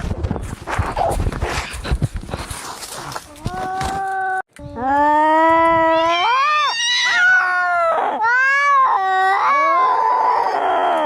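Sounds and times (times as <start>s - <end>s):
cats yowling: 5.4s - 11.0s.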